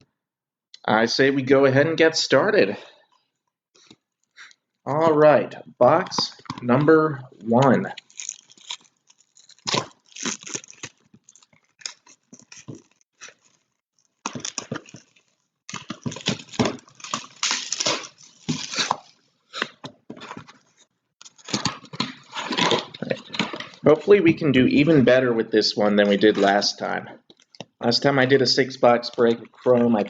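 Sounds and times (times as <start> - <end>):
shrink wrap and cardboard crinkling: 7.8 - 24.0.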